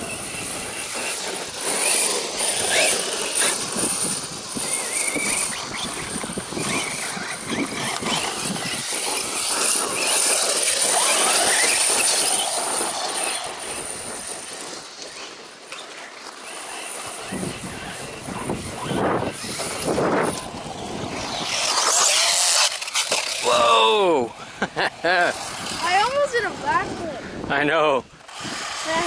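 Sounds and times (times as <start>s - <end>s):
electric motor whining: 0.0s - 27.4s, 28.1s - 29.0s.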